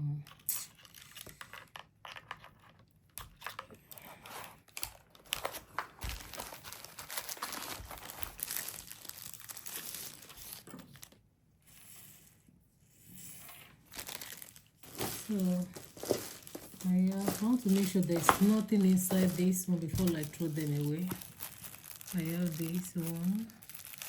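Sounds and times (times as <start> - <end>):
packaging crinkling and tearing: 0.3 - 11.2, 13.9 - 24.0.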